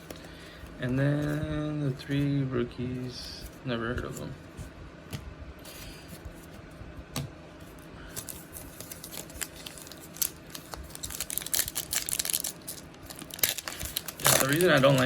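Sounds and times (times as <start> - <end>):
plastic wrapper crinkling: 8.2 - 15.0.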